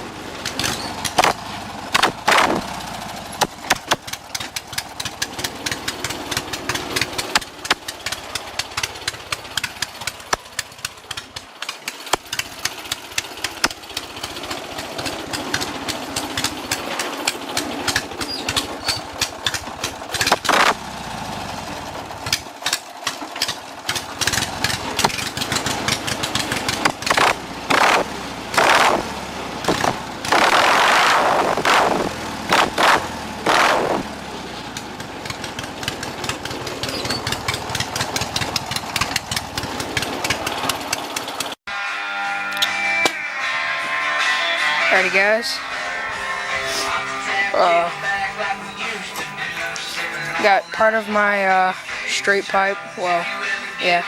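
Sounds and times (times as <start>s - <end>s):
lawn mower engine popping: 0.0s - 41.6s, 42.4s - 52.6s.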